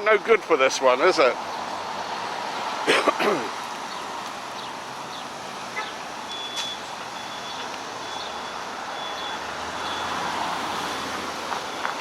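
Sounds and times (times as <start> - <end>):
street traffic: 0.0 - 12.0
truck reversing alarm beeping: 5.8 - 12.0.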